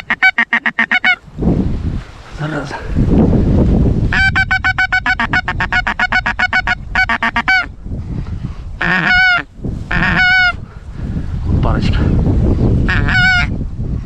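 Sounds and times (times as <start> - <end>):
goose honking: 0.0 - 1.2, 4.1 - 7.7, 8.8 - 10.6, 12.9 - 13.5
wind rumble on microphone: 0.0 - 14.0.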